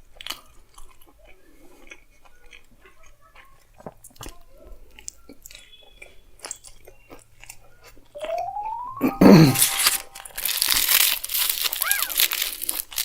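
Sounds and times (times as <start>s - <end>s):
chewing with wet smacks: 0.0s - 8.1s
rising tone: 8.2s - 10.4s.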